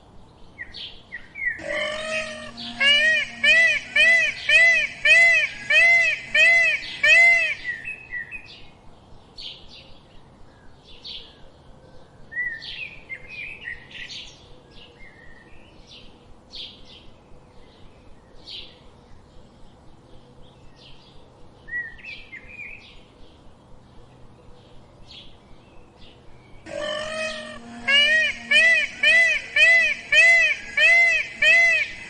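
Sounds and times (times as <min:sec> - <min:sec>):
birds chirping: 0:00.6 - 0:08.6, 0:21.9 - 0:32.0.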